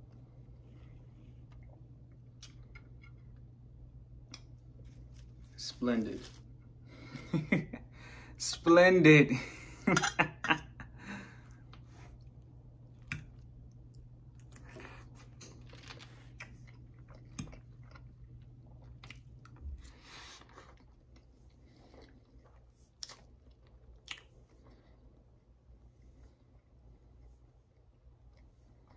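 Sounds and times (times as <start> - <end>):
faint low hum: 0.0 - 28.9
close chewing food: 11.3 - 28.9.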